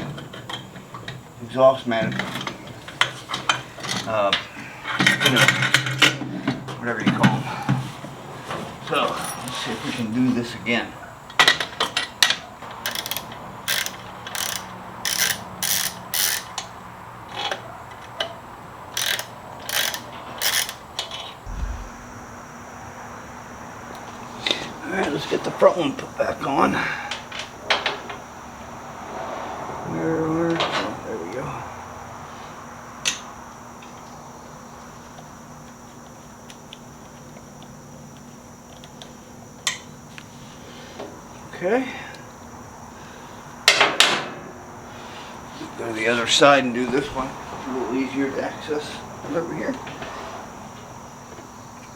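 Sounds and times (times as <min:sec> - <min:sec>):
steady background hum: 0:00.0 - 0:17.8, 0:18.4 - 0:29.0
socket ratchet clicking: 0:12.9 - 0:16.5, 0:18.9 - 0:20.8.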